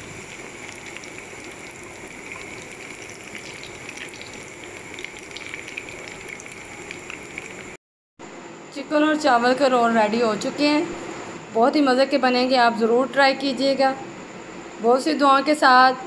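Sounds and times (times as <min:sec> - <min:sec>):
food deep-frying in hot oil: 0:00.0 - 0:07.8.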